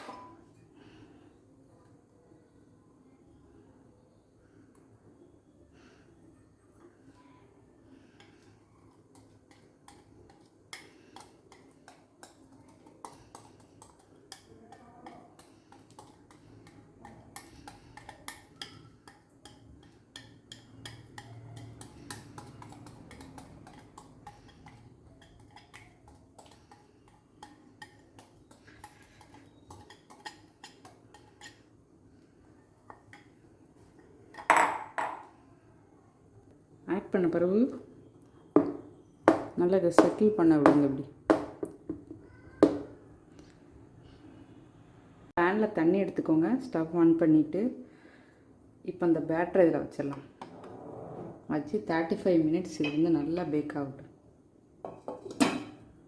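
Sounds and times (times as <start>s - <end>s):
spatula scraping bowl: 8.9s - 31.7s.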